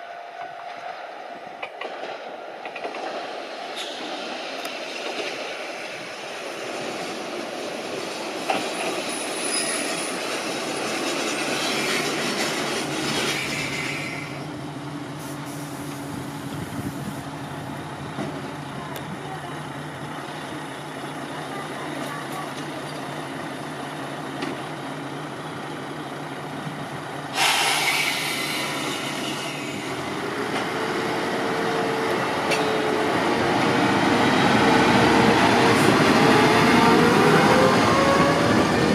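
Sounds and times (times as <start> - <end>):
diesel railcar running on track: 0.0 - 38.9
sudden hiss: 27.3 - 30.1.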